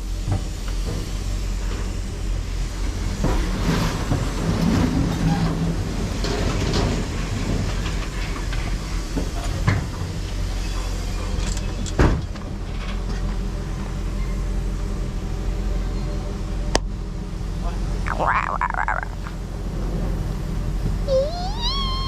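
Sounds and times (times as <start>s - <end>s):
vehicle engine humming: 14.6s - 22.0s.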